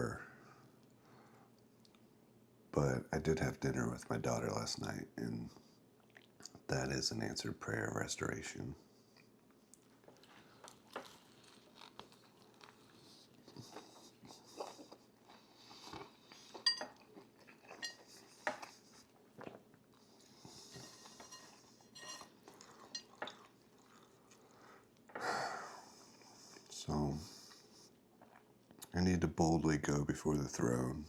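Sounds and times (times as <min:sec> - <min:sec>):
soft chewing: 0:00.6 - 0:02.2, 0:05.6 - 0:06.7, 0:08.8 - 0:29.0
cutlery clinking on a dish: 0:16.6 - 0:17.0, 0:17.7 - 0:18.7, 0:20.7 - 0:23.4.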